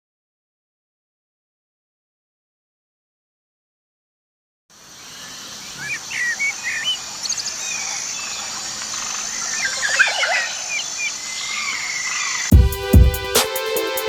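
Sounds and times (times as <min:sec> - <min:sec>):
steady high-pitched hiss: 0:04.7 - 0:14.0
birds chirping and singing: 0:05.2 - 0:12.5.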